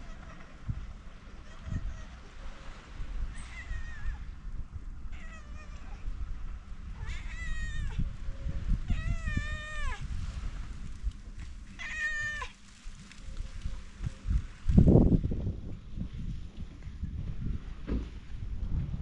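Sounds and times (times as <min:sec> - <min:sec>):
steady low rumble: 0:00.0 - 0:19.0
cat meowing: 0:01.4 - 0:02.3, 0:03.3 - 0:04.3, 0:05.1 - 0:06.1, 0:07.0 - 0:08.0, 0:08.8 - 0:10.0, 0:11.8 - 0:12.6.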